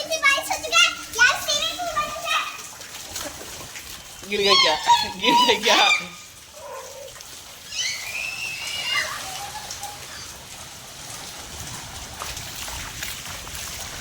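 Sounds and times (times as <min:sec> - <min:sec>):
drips and splashes: 0:00.0 - 0:14.0
rain on a rooftop: 0:00.0 - 0:14.0.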